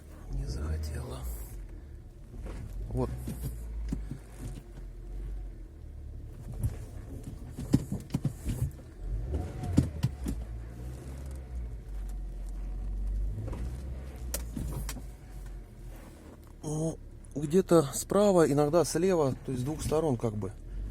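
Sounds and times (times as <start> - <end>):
car rolling with low rumble: 0.0 - 20.9
knocks and creaks from car: 1.5 - 5.4, 6.2 - 16.6, 19.2 - 20.5.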